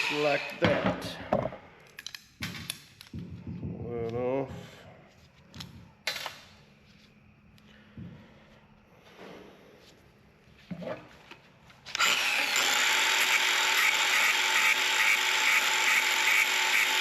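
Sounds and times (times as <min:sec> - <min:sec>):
power tool grinding with high whine: 0:11.9 - 0:17.0.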